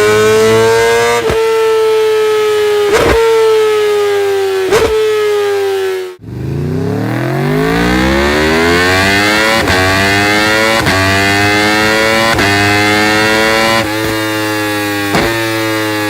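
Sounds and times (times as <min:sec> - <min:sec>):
sport bike revving: 0:00.0 - 0:16.0
superbike engine high revs: 0:00.0 - 0:16.0.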